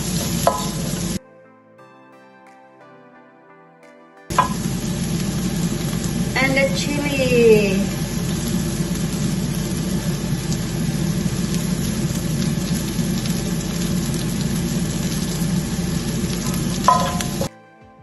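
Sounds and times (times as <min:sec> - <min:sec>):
food sizzling in hot oil: 0:00.0 - 0:01.2, 0:04.3 - 0:17.5
low hum: 0:04.3 - 0:17.5.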